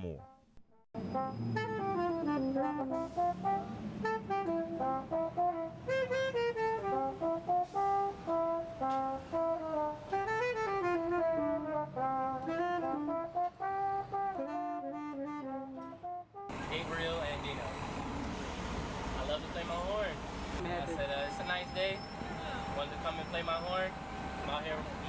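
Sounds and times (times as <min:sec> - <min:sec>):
brass horn melody: 0:01.0 - 0:16.7.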